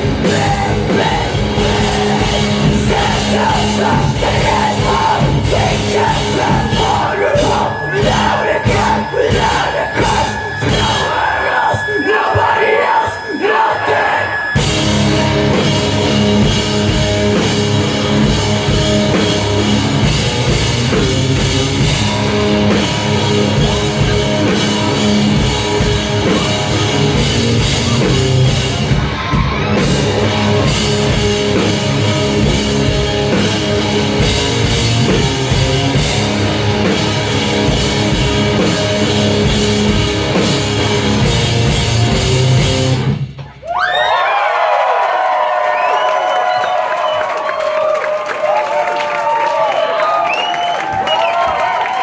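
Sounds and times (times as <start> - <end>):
live rock band playing: 0.0 - 11.2, 14.4 - 43.6.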